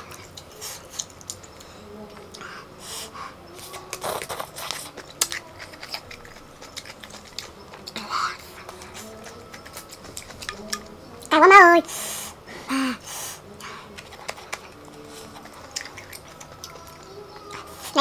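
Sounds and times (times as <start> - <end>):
chewing with wet mouth clicks: 0.0 - 2.5, 3.6 - 11.3, 13.6 - 18.0
biting into food: 13.9 - 17.5.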